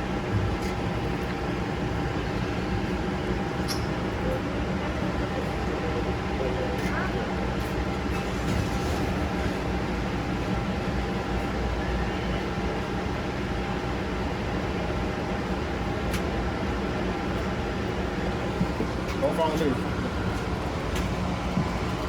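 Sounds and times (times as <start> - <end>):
vehicle running rumble: 0.0 - 11.7, 12.4 - 22.0.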